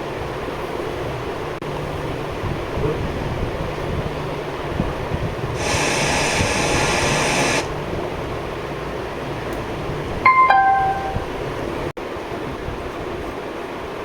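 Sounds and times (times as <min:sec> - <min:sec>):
speaker hiss: 0:05.5 - 0:07.8
two-note electronic beep: 0:10.3 - 0:11.4.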